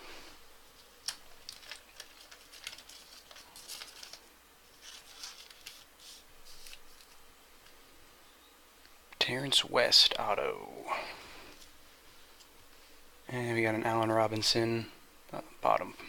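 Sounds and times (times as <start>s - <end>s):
trading cards clicking and rustling: 0.8s - 7.8s.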